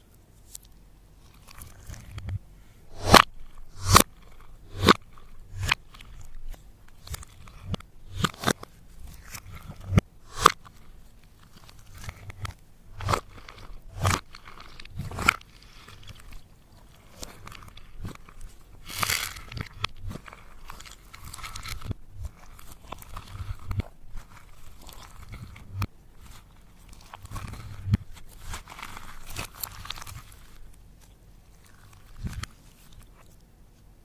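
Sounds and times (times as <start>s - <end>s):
slime crackling and squelching: 0.4s - 33.5s.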